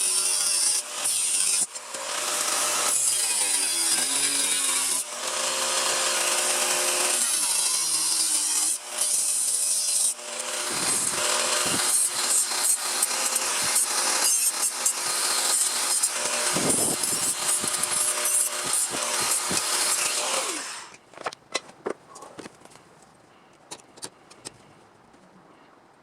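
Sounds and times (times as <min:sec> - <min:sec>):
power tool cutting sheet steel: 0:00.0 - 0:21.0.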